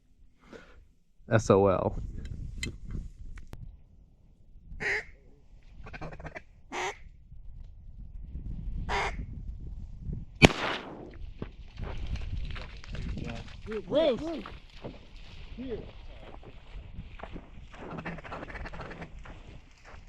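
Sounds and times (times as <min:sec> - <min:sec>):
sharp loud bang: 0:10.4 - 0:11.2.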